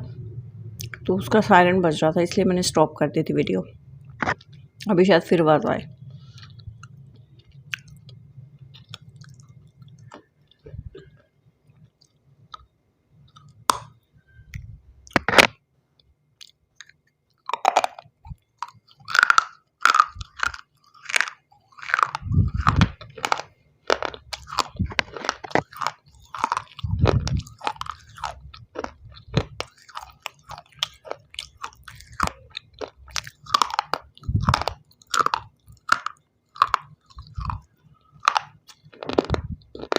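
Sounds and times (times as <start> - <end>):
crunching and chewing stone: 6.2 - 11.2, 16.4 - 39.9.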